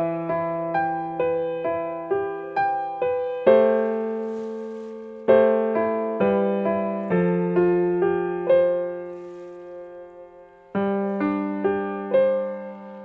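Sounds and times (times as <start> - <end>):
gentle solo piano: 0.0 - 13.0.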